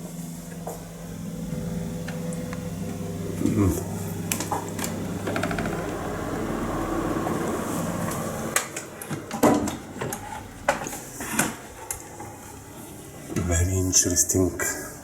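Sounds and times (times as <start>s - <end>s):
air conditioner motor whir: 0.0s - 15.0s.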